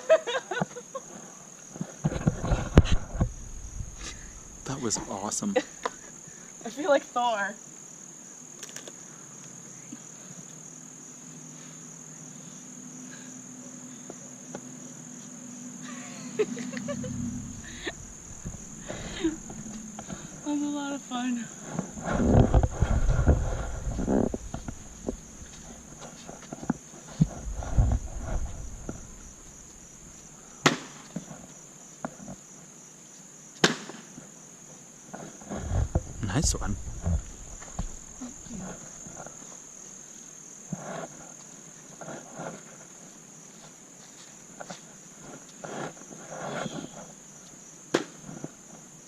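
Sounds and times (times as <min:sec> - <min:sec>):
crickets trilling: 0:00.0 - 0:49.0
low hum: 0:02.4 - 0:05.1, 0:16.2 - 0:20.8, 0:22.0 - 0:26.1, 0:27.2 - 0:30.3, 0:35.8 - 0:39.0.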